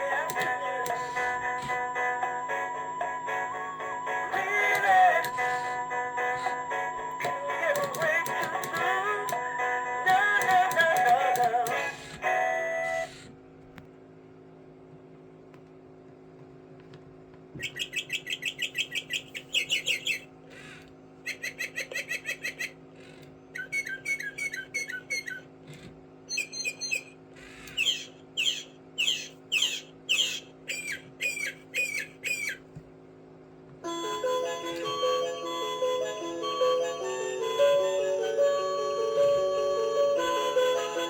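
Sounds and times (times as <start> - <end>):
mechanical bird whistling: 0.2 - 2.0, 4.3 - 9.5, 10.1 - 13.3, 17.6 - 25.5, 26.3 - 32.7.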